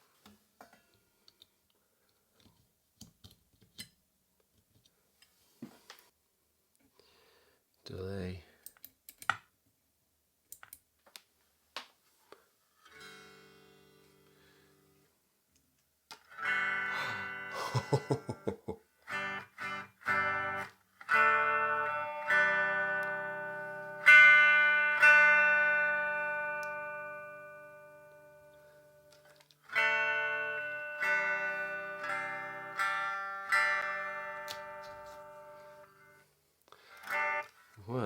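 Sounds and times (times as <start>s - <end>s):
electric guitar chords: 16.3s - 36.2s, 36.8s - 37.6s.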